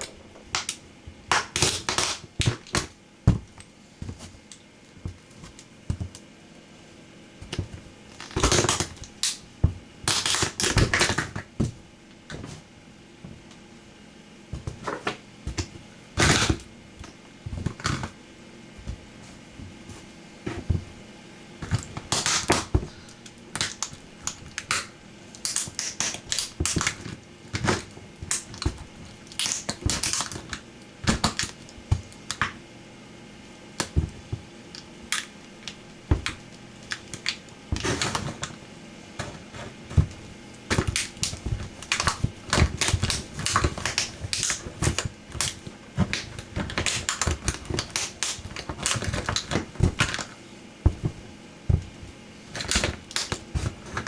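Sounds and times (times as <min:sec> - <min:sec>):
plastic toy cracking and crunching: 0:40.7 - 0:50.4, 0:52.5 - 0:54.0.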